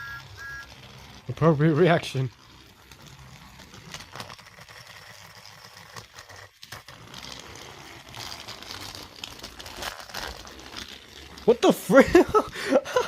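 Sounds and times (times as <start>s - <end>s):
toy train rattling on track: 0.0s - 13.0s.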